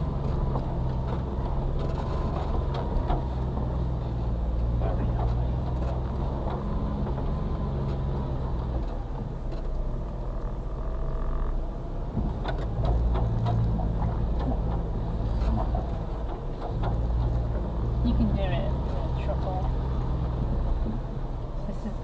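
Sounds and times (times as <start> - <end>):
small truck engine running: 0.0 - 22.0
knocks and rattles from cab: 12.0 - 18.4.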